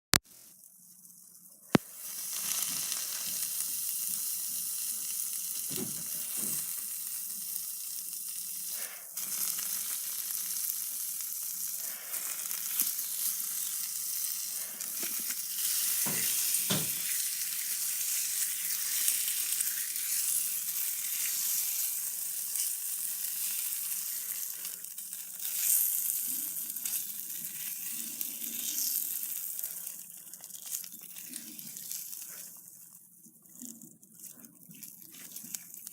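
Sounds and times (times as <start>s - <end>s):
slime squishing and crackling: 12.0s - 35.9s.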